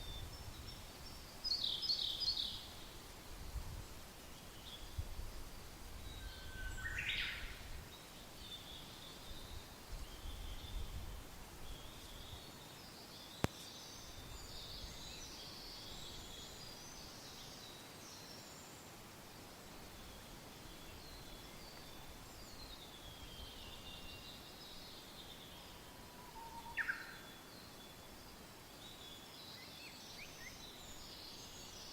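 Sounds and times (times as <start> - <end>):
light wind gusting: 0.0 - 12.5
small birds chirping: 19.7 - 31.9
sweeping bird call: 25.2 - 27.5.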